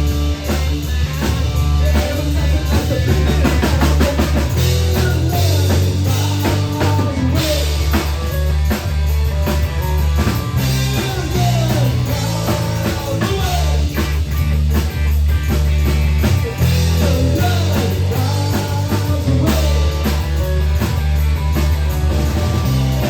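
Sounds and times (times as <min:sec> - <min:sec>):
rock song: 0:00.0 - 0:23.0
person singing: 0:00.1 - 0:08.8, 0:09.4 - 0:14.2, 0:16.4 - 0:20.8.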